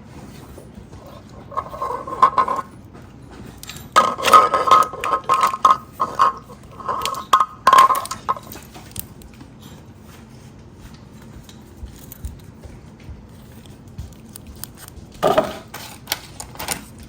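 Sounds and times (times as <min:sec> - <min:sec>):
hand tool clicking and scraping: 0:01.0 - 0:02.7, 0:03.6 - 0:09.1.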